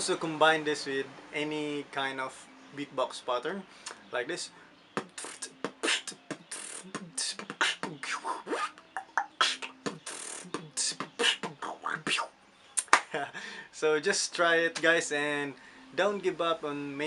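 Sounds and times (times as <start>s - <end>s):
person beatboxing: 5.0s - 12.9s.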